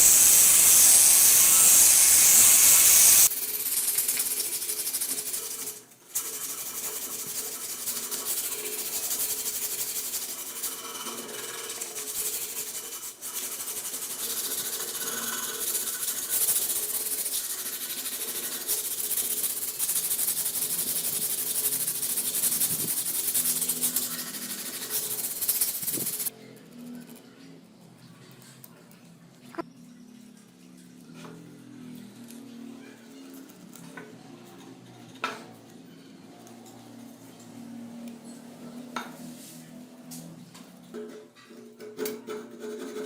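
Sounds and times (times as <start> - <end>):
abrasive hand sanding: 0.0 - 26.3.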